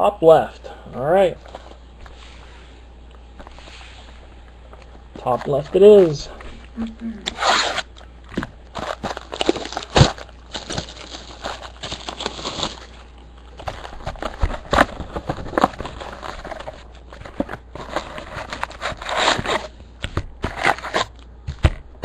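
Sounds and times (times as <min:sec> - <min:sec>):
plastic wrapping crinkling and tearing: 0:07.3 - 0:19.7
cardboard handled: 0:13.6 - 0:22.0.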